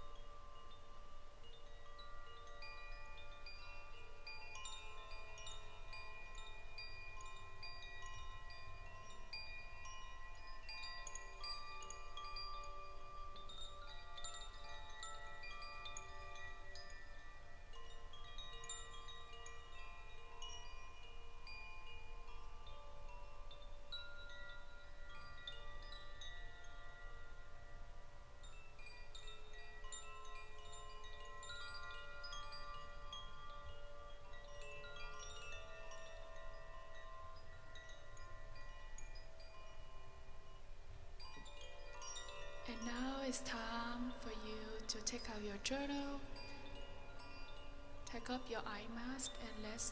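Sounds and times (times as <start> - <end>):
chimes ringing: 0.0 - 49.9.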